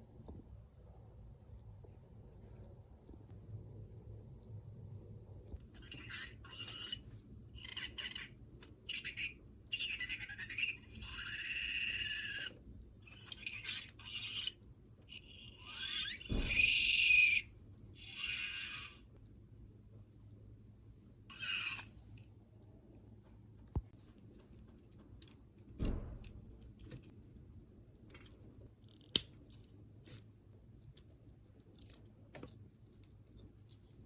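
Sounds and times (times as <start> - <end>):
electronic toy chirping sound effects: 7.6 - 12.5.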